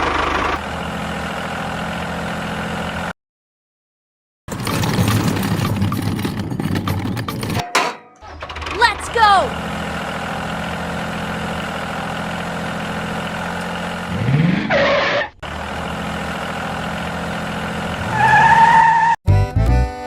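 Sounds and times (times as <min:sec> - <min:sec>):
engine running and revving: 0:00.0 - 0:03.1, 0:09.5 - 0:14.8, 0:15.4 - 0:19.1
music: 0:19.3 - 0:20.0.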